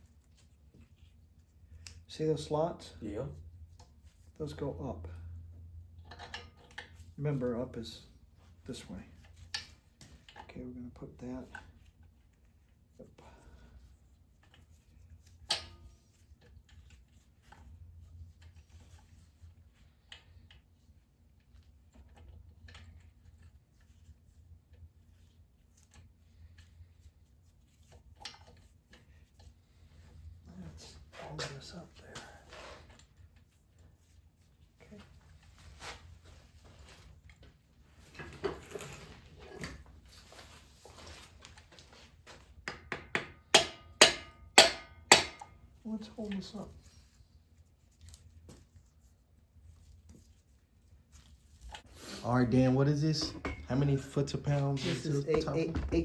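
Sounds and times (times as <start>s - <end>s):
low steady hum: 0.0s - 42.4s.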